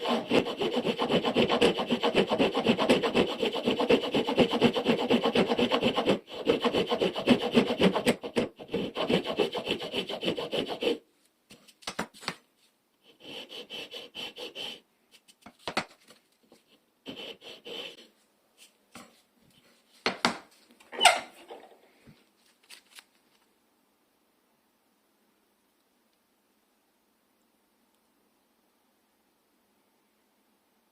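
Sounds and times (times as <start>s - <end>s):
float rasping wood: 0.0s - 11.0s, 13.1s - 14.8s, 17.1s - 18.0s.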